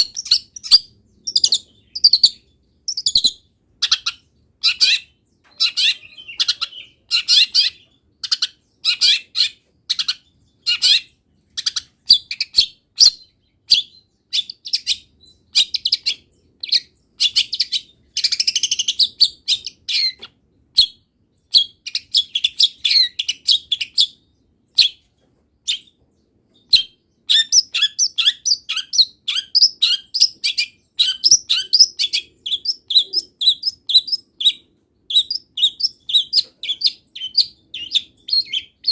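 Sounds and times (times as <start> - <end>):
bird singing high chirps: 0.0 - 38.9.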